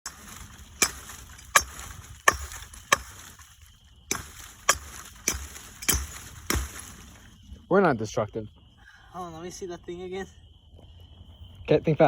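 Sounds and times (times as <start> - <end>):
sharp chopping strikes: 0.1 - 3.3, 4.1 - 6.9.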